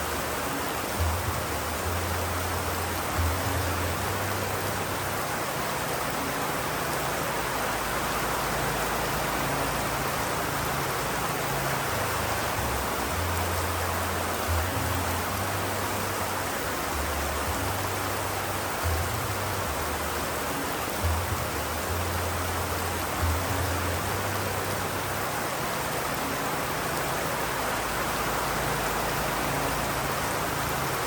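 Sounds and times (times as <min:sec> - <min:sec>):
steady rain: 0:00.0 - 0:31.0.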